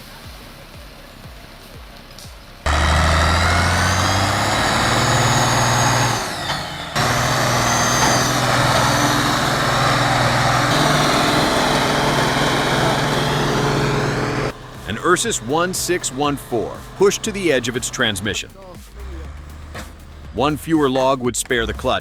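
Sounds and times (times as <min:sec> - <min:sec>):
tractor diesel engine running: 0:02.7 - 0:20.9.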